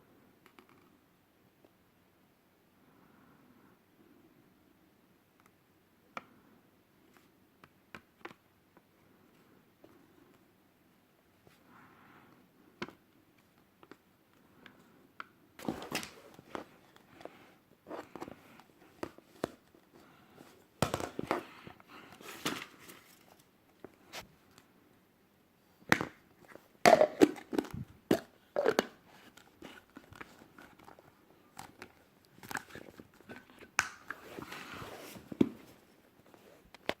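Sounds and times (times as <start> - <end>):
items clicking and knocking: 25.9 - 34.5.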